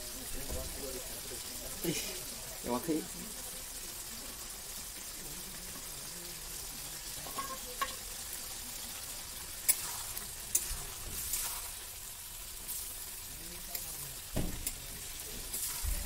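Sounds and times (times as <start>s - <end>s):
food sizzling in a wok: 0.0s - 16.0s
metal spatula stirring: 7.2s - 8.0s, 9.6s - 11.9s
utensils clinking against pans: 7.2s - 8.1s, 9.7s - 11.6s, 13.7s - 15.8s.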